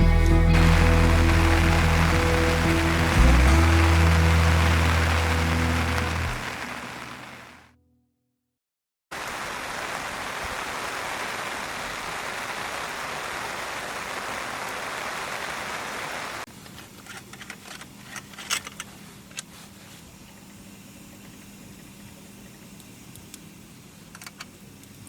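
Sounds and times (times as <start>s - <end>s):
heavy rain: 0.0s - 7.7s, 9.1s - 16.5s.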